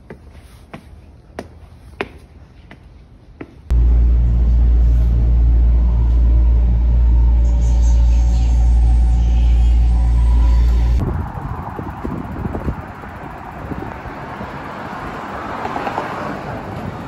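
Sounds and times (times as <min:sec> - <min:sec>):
footsteps on concrete steps: 0:00.0 - 0:03.7.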